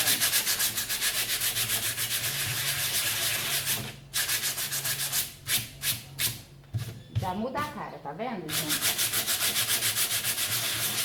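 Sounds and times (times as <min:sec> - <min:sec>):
sandpaper rubbing on mortar: 0:00.0 - 0:06.0, 0:08.5 - 0:11.0.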